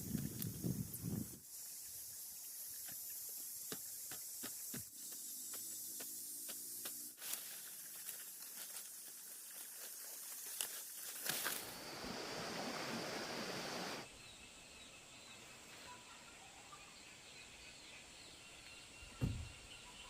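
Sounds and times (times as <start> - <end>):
rain: 12.1 - 14.0.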